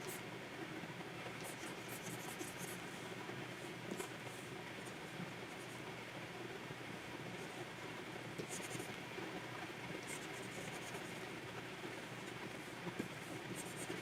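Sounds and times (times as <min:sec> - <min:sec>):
pen nib scratching on tablet: 0:01.4 - 0:02.8, 0:08.4 - 0:08.9, 0:10.0 - 0:11.1, 0:13.5 - 0:14.0.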